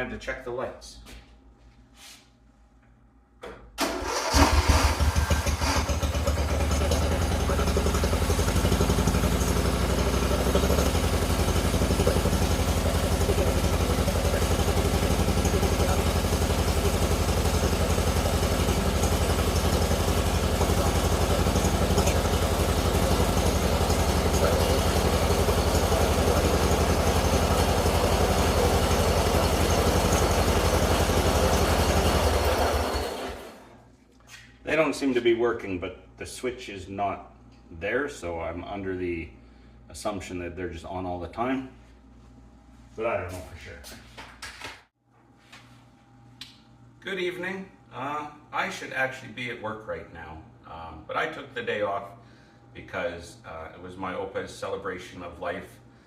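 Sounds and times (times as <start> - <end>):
lawn tractor engine: 3.8 - 33.7.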